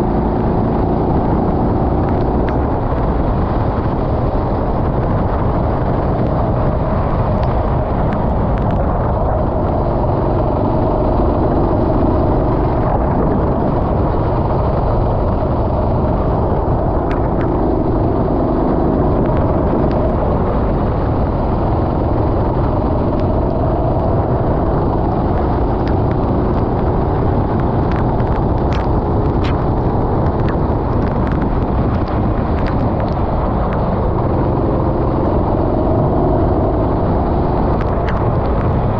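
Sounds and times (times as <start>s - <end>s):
low rushing noise: 0.0s - 38.9s
racing kart engine: 13.4s - 30.4s.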